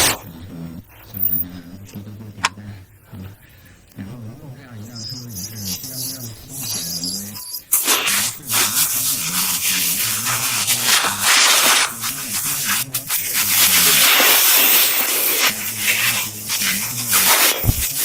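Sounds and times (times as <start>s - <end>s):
pressure washer spraying water: 7.7s - 18.0s.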